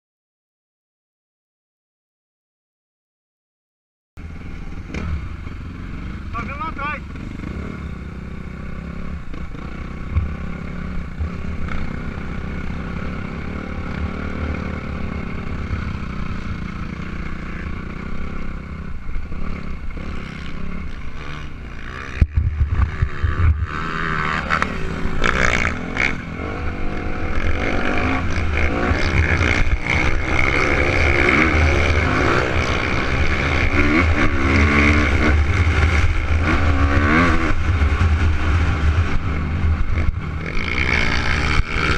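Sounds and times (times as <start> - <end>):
motocross bike revving: 4.2 - 41.9.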